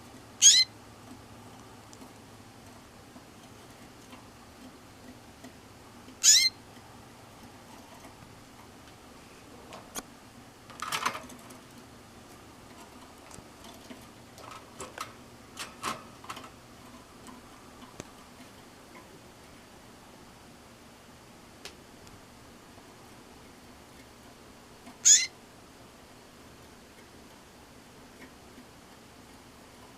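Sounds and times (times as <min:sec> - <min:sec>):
canary call: 0:00.4 - 0:00.7, 0:06.2 - 0:06.6, 0:25.0 - 0:25.4
light clicks and taps in cage: 0:01.0 - 0:09.0, 0:10.7 - 0:19.1, 0:28.1 - 0:29.9.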